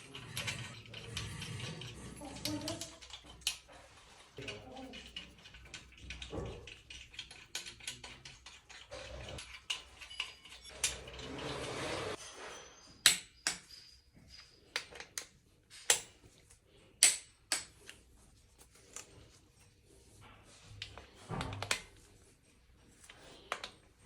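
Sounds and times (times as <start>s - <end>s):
metal tools clinking: 0.0s - 16.2s.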